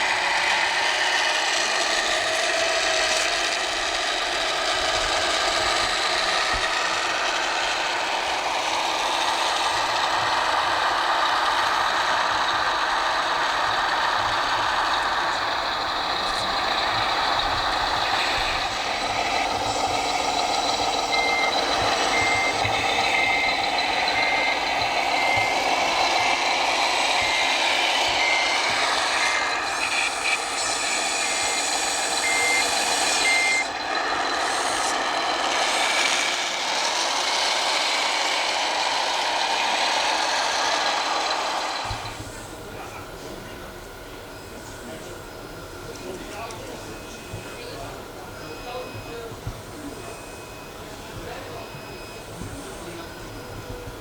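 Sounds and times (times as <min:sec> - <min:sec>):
model truck engine noise: 0:00.0 - 0:54.0
reversing beeper beeping: 0:03.0 - 0:54.0.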